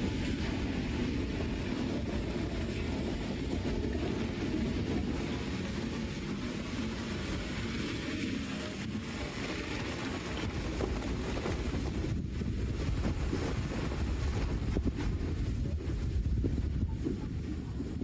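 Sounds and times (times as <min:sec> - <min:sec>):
mudslide rumbling rush: 0:00.0 - 0:18.0.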